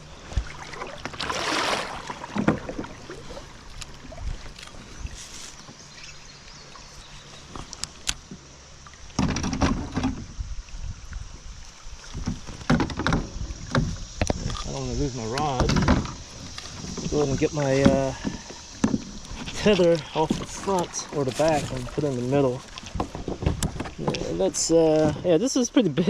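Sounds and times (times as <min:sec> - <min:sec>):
water splashing around a kayak: 0:00.0 - 0:26.0
rough thumps and rustles: 0:09.1 - 0:10.4, 0:12.1 - 0:25.3
gear knocking against hull: 0:12.2 - 0:25.4.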